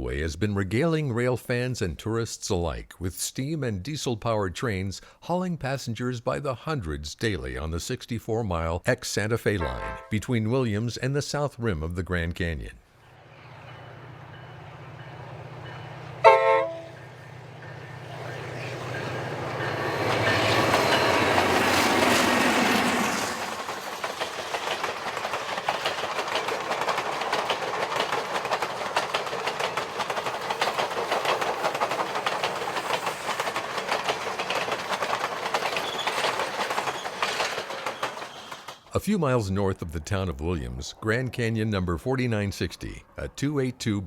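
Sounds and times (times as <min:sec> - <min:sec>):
train horn blast: 0:09.6 - 0:10.2, 0:16.2 - 0:17.1
locomotive passing: 0:12.9 - 0:41.0
train wheels clickety-clack: 0:17.6 - 0:38.9.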